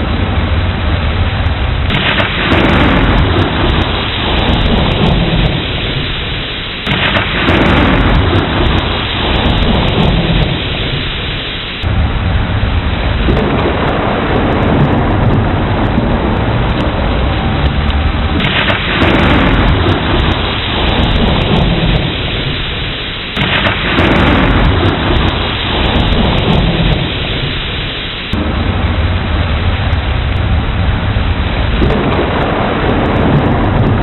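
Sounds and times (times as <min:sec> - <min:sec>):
heavy rain: 0:00.0 - 0:34.0
rolling thunder: 0:00.0 - 0:34.0.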